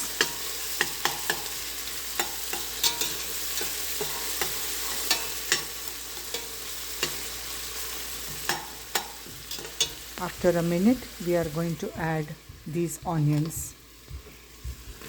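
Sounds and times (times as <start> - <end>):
paste sizzling in oil: 0.0 - 15.0
spoon scraping a pot: 8.2 - 10.1.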